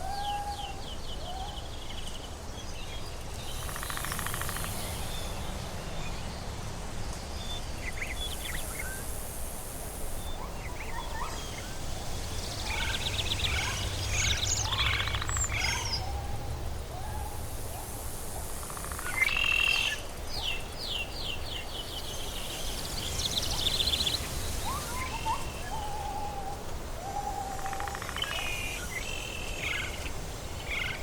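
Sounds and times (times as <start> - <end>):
high insect-like hiss: 2.4 - 31.0
birds chirping and trilling: 10.1 - 31.0.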